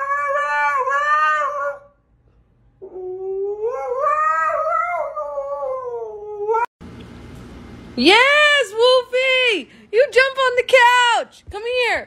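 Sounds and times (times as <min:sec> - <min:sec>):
dog howling: 0:00.0 - 0:02.0, 0:02.8 - 0:06.7.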